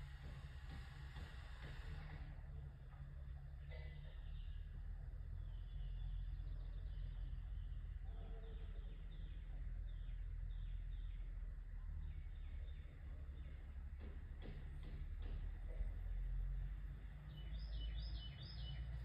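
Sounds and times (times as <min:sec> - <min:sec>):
bird chirping: 0:03.7 - 0:13.8, 0:17.2 - 0:19.0.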